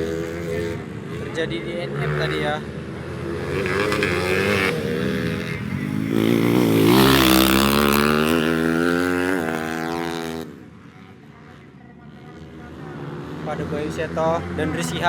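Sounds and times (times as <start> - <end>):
motorcycle engine revving hard: 0.0 - 10.6.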